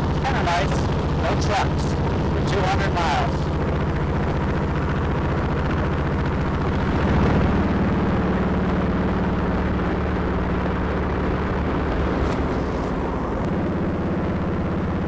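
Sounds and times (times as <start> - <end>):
motorcycle engine running: 0.0 - 15.0
wind rushing: 6.6 - 9.8.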